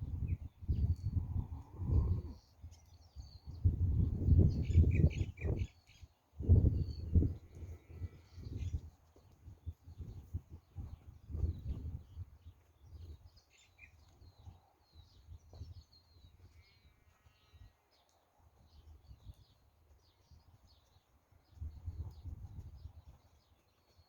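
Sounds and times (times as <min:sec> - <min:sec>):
wind buffeting microphone: 0:00.0 - 0:05.7, 0:06.4 - 0:13.4, 0:21.4 - 0:23.2
small birds chirping: 0:00.0 - 0:24.0.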